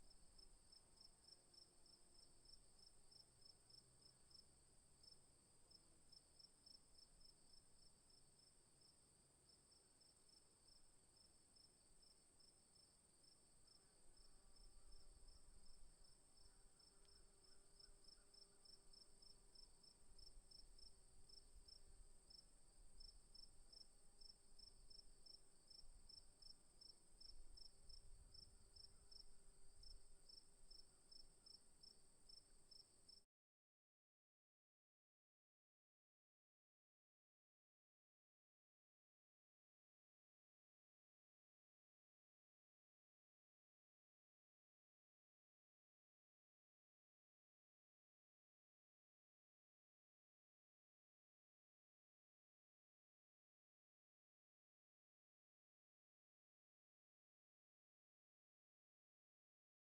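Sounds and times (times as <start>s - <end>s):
crickets chirping: 0.0s - 33.2s.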